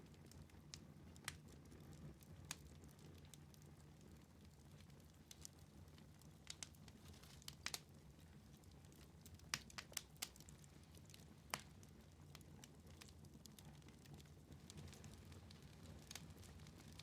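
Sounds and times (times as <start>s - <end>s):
wood fire crackling: 0.0s - 17.0s
fire pops: 6.4s - 7.9s.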